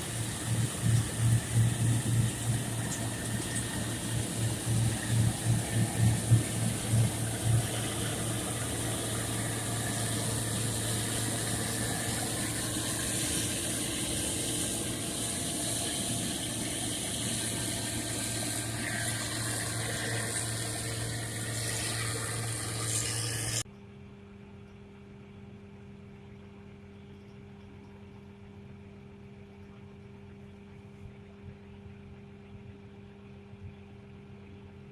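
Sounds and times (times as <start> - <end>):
harvest machinery running: 0.0 - 23.6
loud rushing hiss: 0.0 - 23.6.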